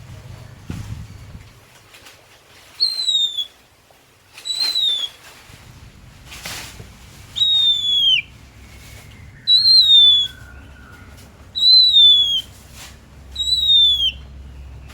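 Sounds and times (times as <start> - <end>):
bird whistling falling notes: 2.8 - 3.6, 4.4 - 5.2, 7.3 - 11.0, 11.6 - 12.5, 13.3 - 14.2.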